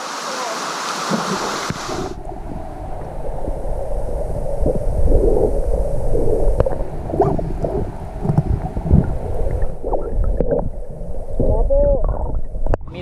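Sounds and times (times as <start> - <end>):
wind buffeting microphone: 1.6 - 13.0.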